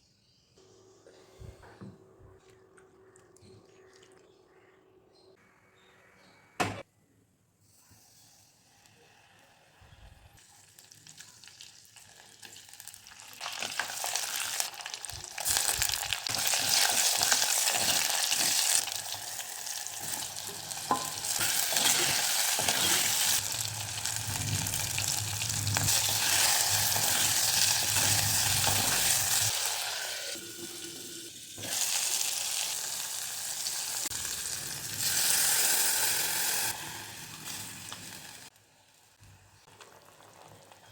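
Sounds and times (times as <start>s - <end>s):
food sizzling in hot oil: 10.4s - 39.0s.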